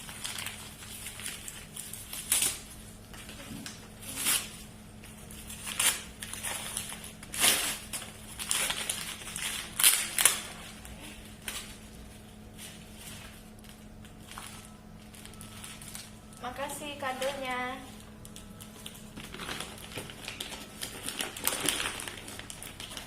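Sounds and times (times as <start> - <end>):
wrapping paper tearing and rustling: 0.0 - 23.0.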